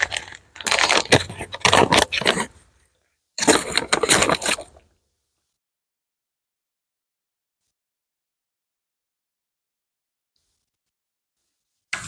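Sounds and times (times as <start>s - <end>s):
crinkling and scraping handling noise: 0.0s - 4.9s.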